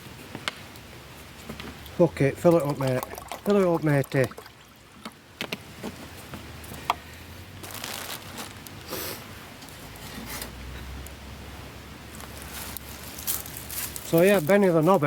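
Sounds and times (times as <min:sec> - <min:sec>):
camping gear rustling and clicking: 0:07.6 - 0:08.9, 0:12.1 - 0:15.0.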